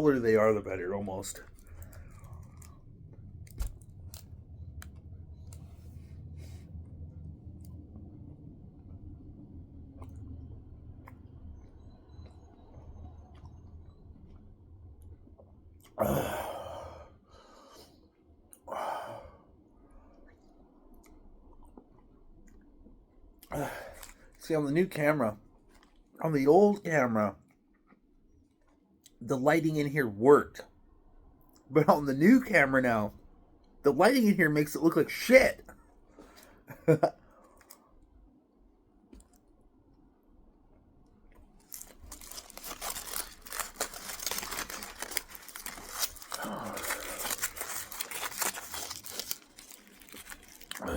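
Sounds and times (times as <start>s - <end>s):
man sighing: 16.0s - 17.1s, 23.5s - 24.0s, 46.4s - 47.4s
candy wrapper crinkling and tearing: 41.4s - 50.9s.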